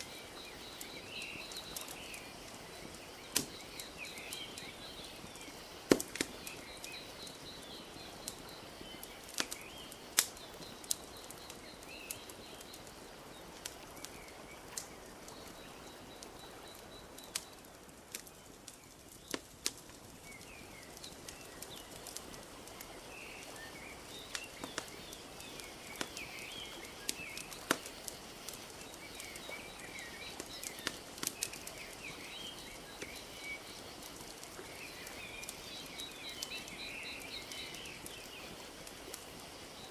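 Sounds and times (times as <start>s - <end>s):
small birds chirping: 0.0s - 39.9s
wood fire crackling: 0.0s - 39.9s.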